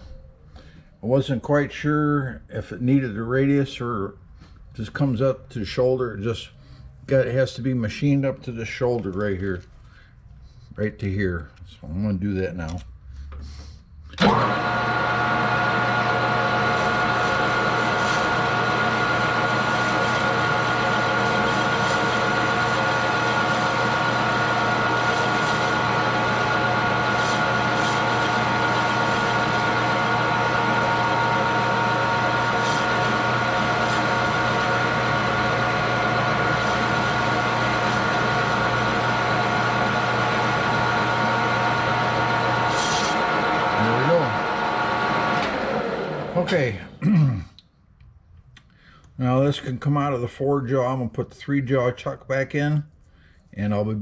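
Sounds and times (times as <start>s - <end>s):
metal lathe running: 14.2s - 46.6s.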